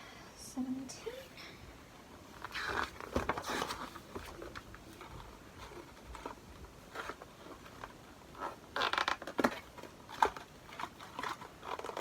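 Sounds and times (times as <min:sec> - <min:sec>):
cardboard box handled: 0:02.3 - 0:12.0
cardboard sliding rasp: 0:02.4 - 0:07.7.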